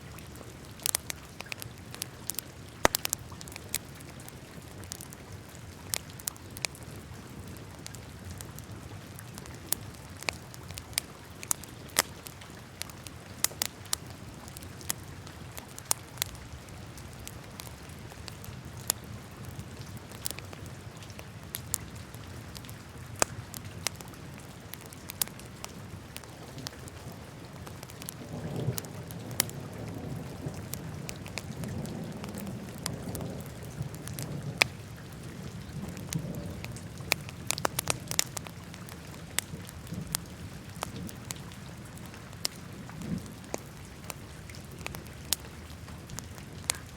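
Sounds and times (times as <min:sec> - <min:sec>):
wood fire crackling and popping: 0:00.2 - 0:46.9
rumble of flames: 0:22.4 - 0:46.9.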